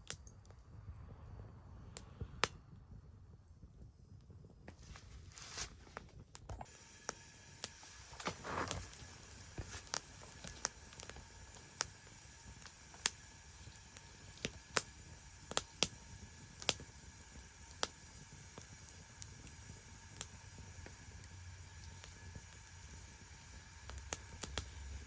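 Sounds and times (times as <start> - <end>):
wood fire crackling and popping: 0.0 - 0.7, 1.4 - 25.0
soft rustle: 4.6 - 6.7, 7.7 - 10.8.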